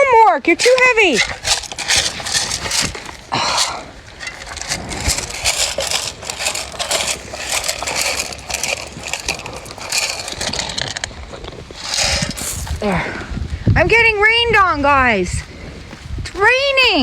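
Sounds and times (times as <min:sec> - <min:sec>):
crunching and rustling: 0:00.0 - 0:13.5.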